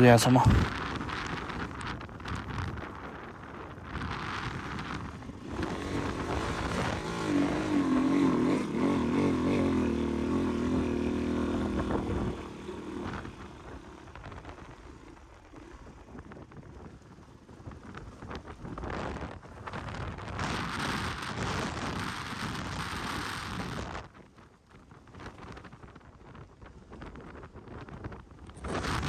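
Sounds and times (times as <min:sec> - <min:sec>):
dirt bike engine revving: 0:04.9 - 0:15.7.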